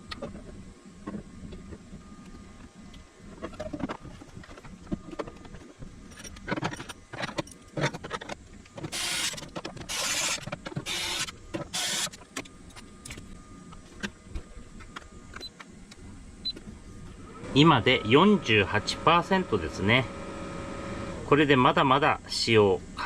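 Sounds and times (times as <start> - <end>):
electric screwdriver whirring: 8.9 - 12.2.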